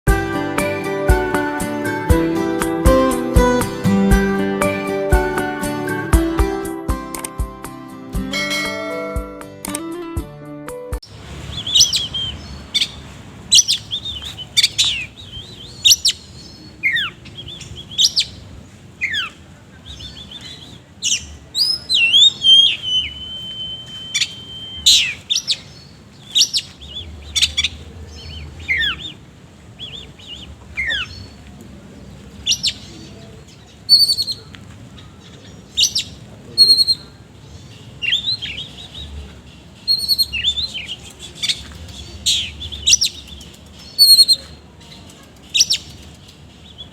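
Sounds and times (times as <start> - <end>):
bird singing varied song: 11.0 - 46.9.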